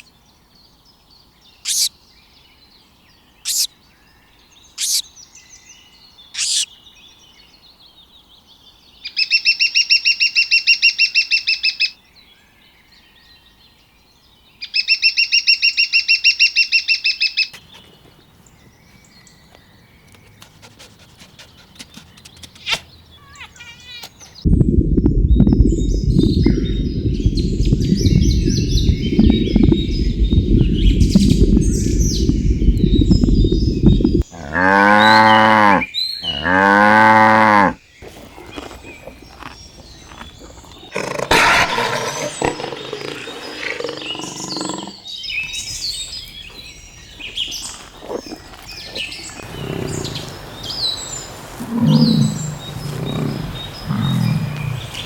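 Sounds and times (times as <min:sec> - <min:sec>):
bird chirps: 0:01.6 - 0:02.0, 0:03.4 - 0:03.7, 0:04.7 - 0:06.9, 0:14.8 - 0:36.8
scattered animal calls: 0:01.7 - 0:01.9, 0:03.5 - 0:03.7, 0:06.4 - 0:06.7, 0:20.2 - 0:24.4, 0:25.4 - 0:50.5
loud low rumbling noise: 0:24.4 - 0:34.3
cow mooing: 0:34.2 - 0:37.8.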